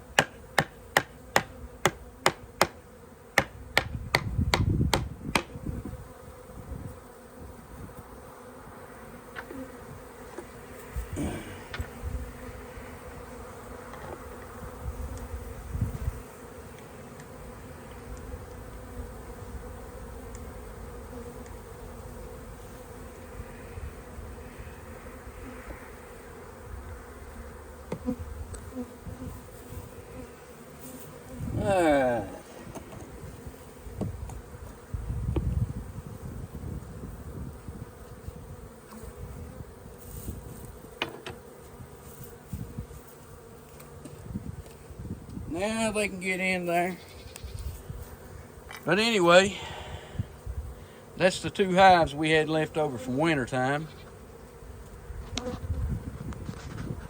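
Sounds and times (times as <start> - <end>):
honeybees buzzing: 0.0 - 57.0
sharp knocks: 0.2 - 2.8, 3.4 - 5.5.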